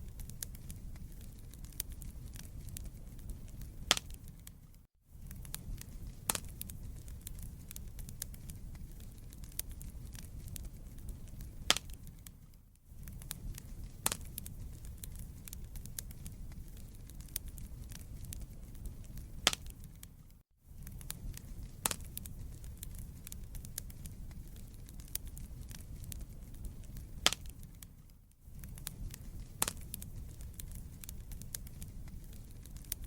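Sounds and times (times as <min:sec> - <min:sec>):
burning logs crackling and popping: 0:00.0 - 0:33.0
wood fire rumbling: 0:00.0 - 0:33.0.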